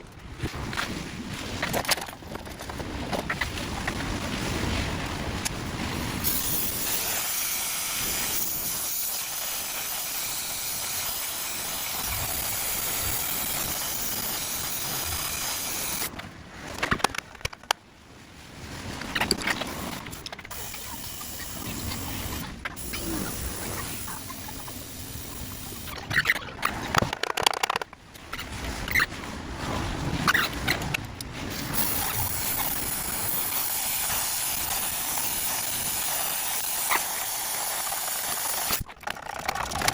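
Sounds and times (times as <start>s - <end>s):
steady hiss: 6.2s - 16.1s, 31.6s - 38.8s.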